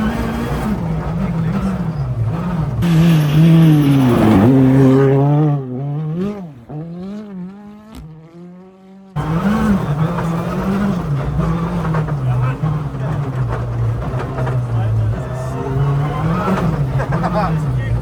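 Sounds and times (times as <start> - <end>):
car engine revving hard: 0.0 - 18.0.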